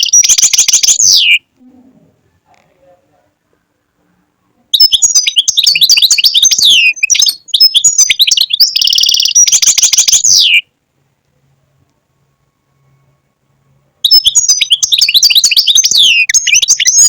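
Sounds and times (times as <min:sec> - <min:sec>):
goldfinch singing: 0:00.0 - 0:01.4, 0:04.8 - 0:10.6, 0:14.0 - 0:17.0.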